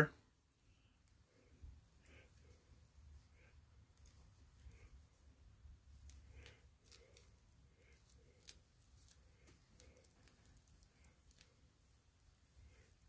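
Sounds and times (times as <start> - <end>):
small clicks and ticks from hands: 3.3 - 13.0.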